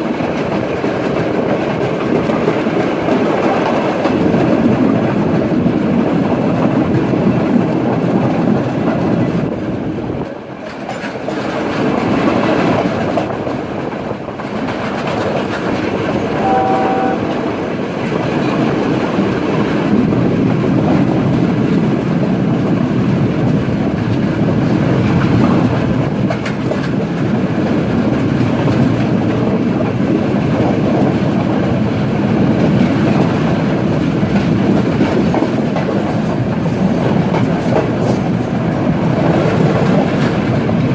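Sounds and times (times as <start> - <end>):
train wheels rumbling and rattling: 0.0 - 40.9
train horn blast: 16.1 - 17.5.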